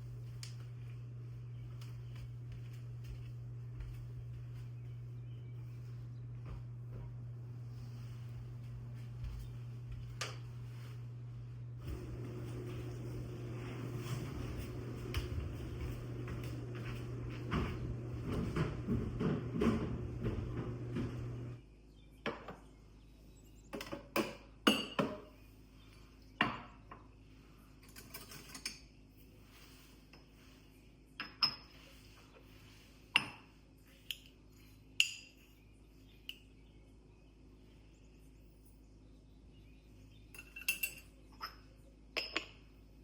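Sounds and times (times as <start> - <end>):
steady running noise with hum: 0.0 - 23.9
dishes and cutlery clinking: 40.4 - 42.6.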